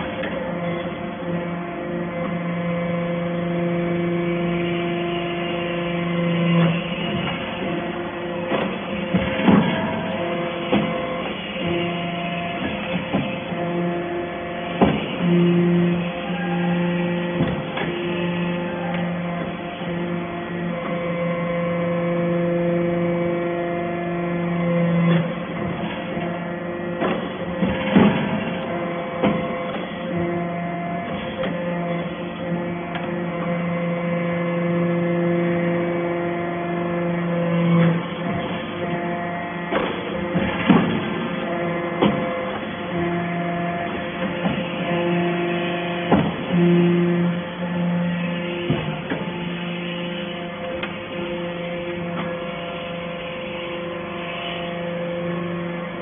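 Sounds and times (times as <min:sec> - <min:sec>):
machine hum: 0:00.0 - 0:56.0
sharp knocks and clanks: 0:08.4 - 0:13.7, 0:14.7 - 0:15.9, 0:27.0 - 0:30.3, 0:39.7 - 0:42.7, 0:45.9 - 0:46.6.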